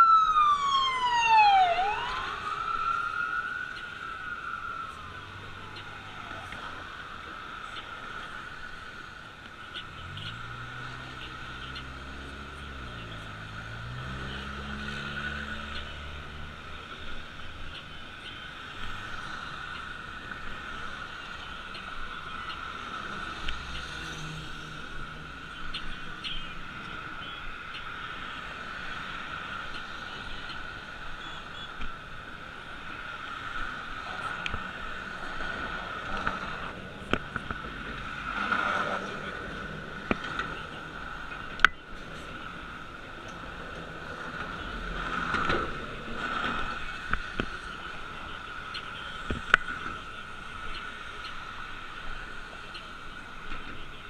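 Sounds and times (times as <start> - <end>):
motor vehicle passing: 22.8 - 25.4, 33.4 - 42.6.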